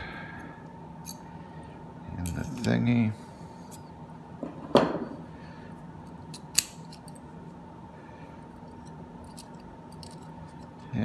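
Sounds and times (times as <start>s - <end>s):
lamp holder parts clicking: 6.3s - 7.2s, 9.2s - 10.8s.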